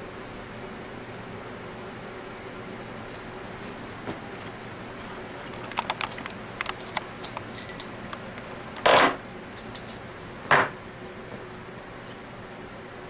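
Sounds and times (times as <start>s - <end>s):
metal parts clinking: 0.2s - 10.0s.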